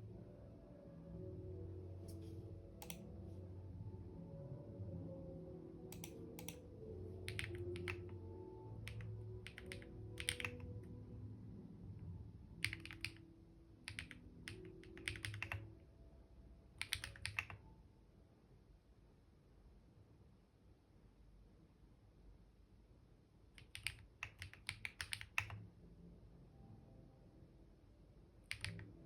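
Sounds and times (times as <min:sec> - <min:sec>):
computer keyboard typing: 0:02.8 - 0:03.0, 0:05.9 - 0:06.6, 0:07.3 - 0:08.2, 0:08.8 - 0:10.8, 0:12.6 - 0:13.2, 0:13.8 - 0:15.7, 0:16.8 - 0:17.6, 0:23.6 - 0:25.6, 0:28.5 - 0:29.0.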